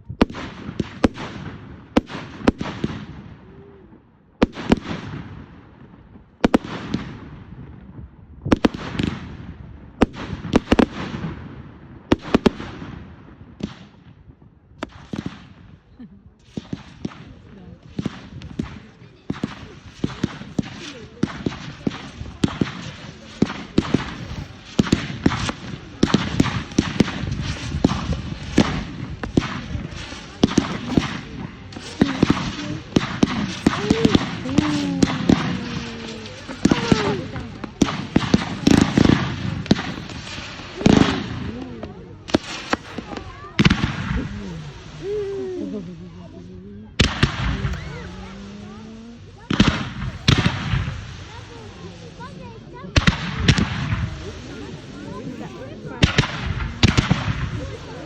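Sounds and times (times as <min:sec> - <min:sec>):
fireworks bangs: 0:00.1 - 0:03.4, 0:04.4 - 0:58.0
fireworks crackling hiss: 0:16.3 - 0:58.0.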